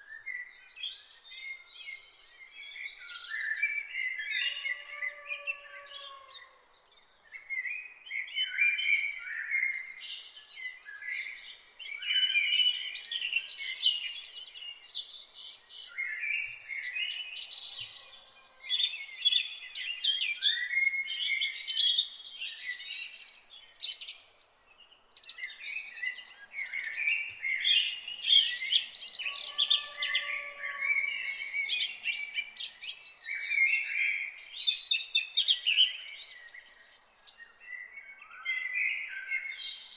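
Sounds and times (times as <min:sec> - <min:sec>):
songbirds chirping: 0:00.0 - 0:39.9
low drawn-out bird call: 0:29.2 - 0:31.3.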